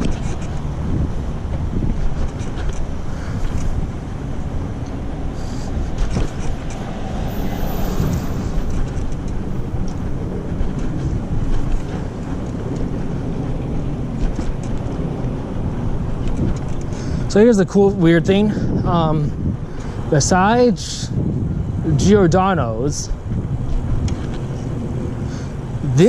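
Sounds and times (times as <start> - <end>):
tyres rumbling on pavement: 0.0 - 26.0
wind buffeting microphone: 0.0 - 26.0
small clicks and rattles: 13.6 - 15.1.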